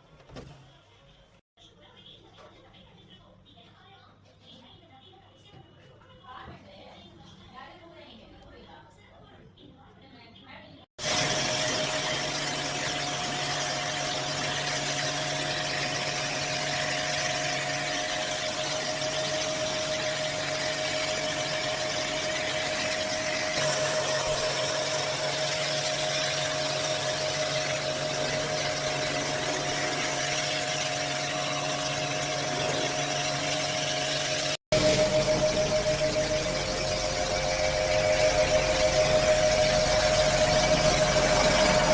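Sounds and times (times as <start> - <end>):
machine whine: 11.0 - 41.9
low hum: 26.4 - 41.9.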